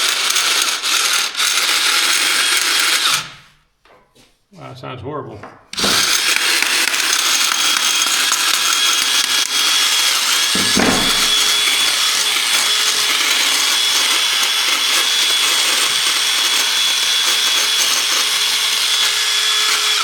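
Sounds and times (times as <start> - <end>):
cordless drill running harshly: 0.0 - 3.4, 5.8 - 20.0.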